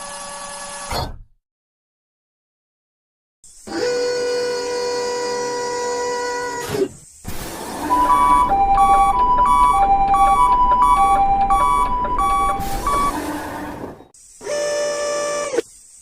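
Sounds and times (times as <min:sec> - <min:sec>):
railroad crossing signal ringing: 0:07.9 - 0:13.2.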